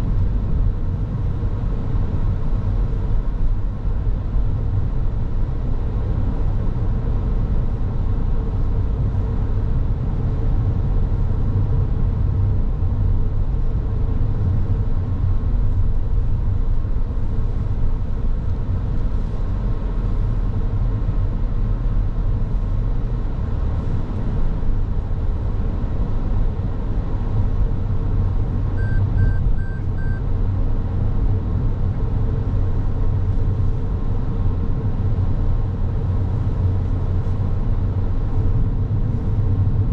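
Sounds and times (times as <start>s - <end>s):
car engine and tyre rumble: 0.0s - 39.9s
short high beeps: 28.8s - 30.2s.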